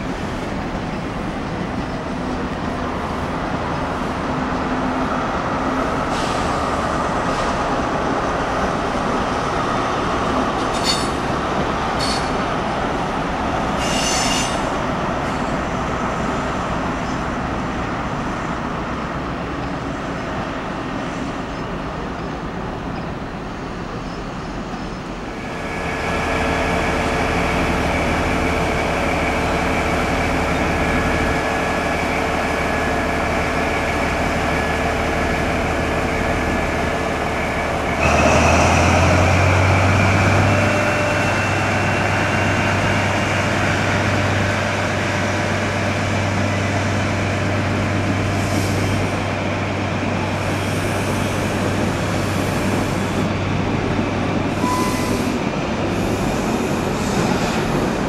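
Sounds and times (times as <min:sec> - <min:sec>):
passenger train rumbling on tracks: 0:00.0 - 0:58.0
wheels squealing on rail: 0:10.6 - 0:11.3, 0:12.0 - 0:12.4, 0:13.7 - 0:15.6, 0:54.5 - 0:58.0.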